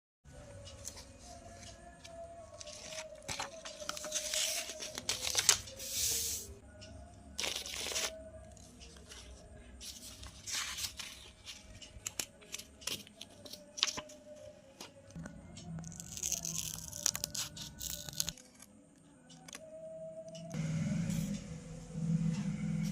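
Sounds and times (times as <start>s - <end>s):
paper tearing and crinkling: 15.9s - 18.4s.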